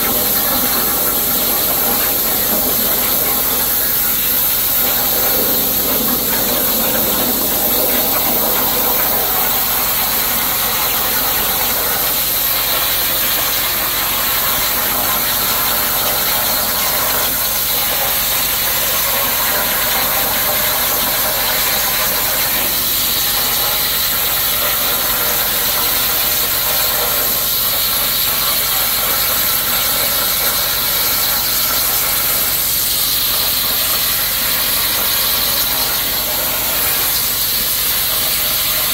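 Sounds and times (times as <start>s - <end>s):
plasma torch hissing: 0.0s - 11.0s.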